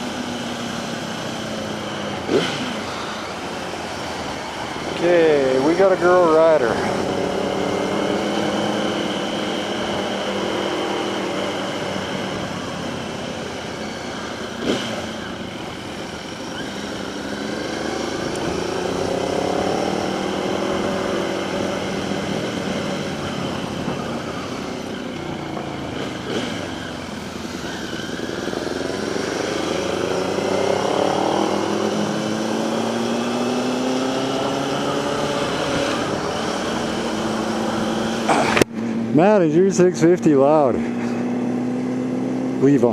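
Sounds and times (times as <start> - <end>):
motorcycle engines accelerating: 0.0 - 42.9.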